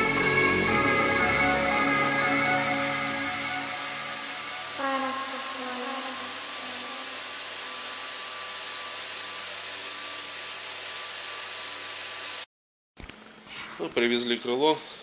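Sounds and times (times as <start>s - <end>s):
background music: 0.0s - 5.2s
orbital sander running: 0.0s - 12.4s.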